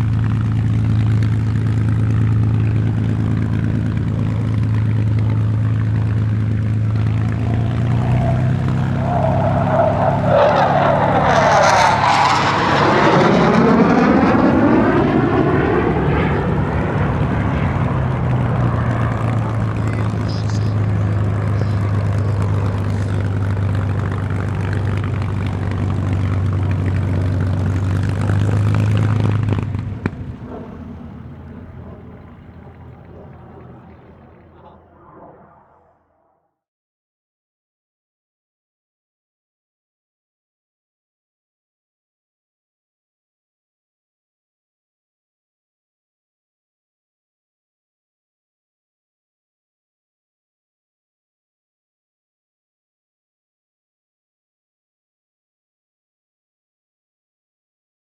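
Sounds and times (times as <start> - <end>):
propeller plane engine droning: 0.0 - 36.3.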